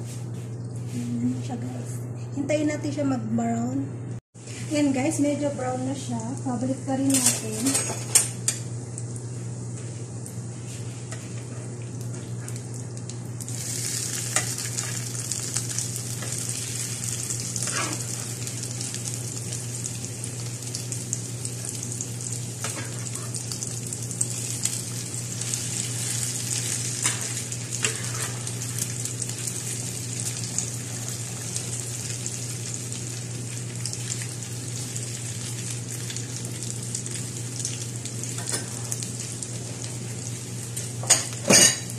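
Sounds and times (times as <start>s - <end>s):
fritters sizzling in oil: 13.4s - 41.9s.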